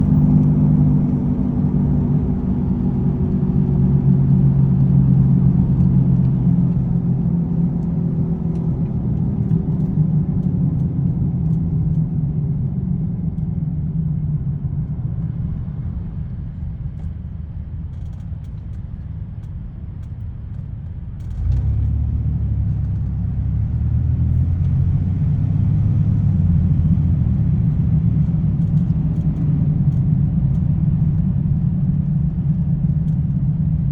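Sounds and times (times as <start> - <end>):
deep loud engine running: 0.0 - 16.7
freeway traffic rumble: 0.0 - 33.9.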